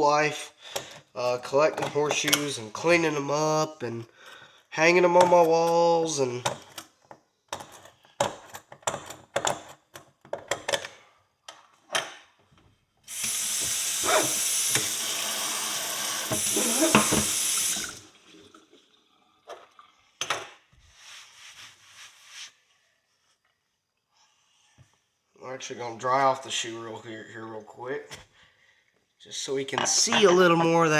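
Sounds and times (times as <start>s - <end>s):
tap water running into sink: 13.1s - 19.8s.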